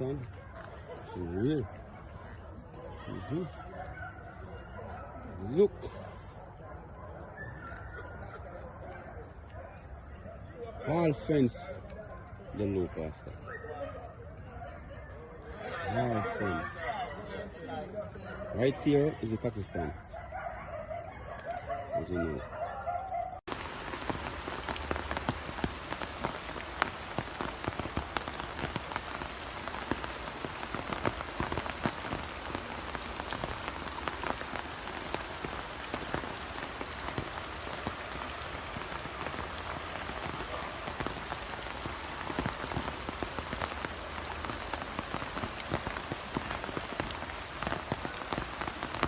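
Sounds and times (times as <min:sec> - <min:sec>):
rain falling: 0:00.0 - 0:05.8, 0:23.5 - 0:49.0.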